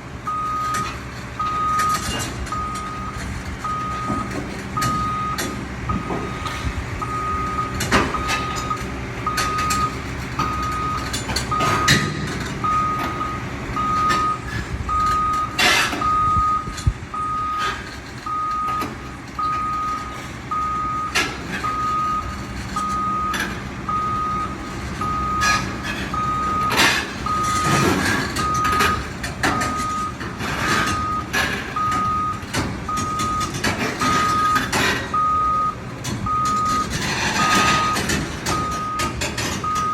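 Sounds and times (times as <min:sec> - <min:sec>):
diesel engine running: 0:00.0 - 0:39.9
reversing alarm beeping: 0:00.3 - 0:39.9
clanks and knocks: 0:01.8 - 0:16.1, 0:24.8 - 0:35.2, 0:36.0 - 0:39.9.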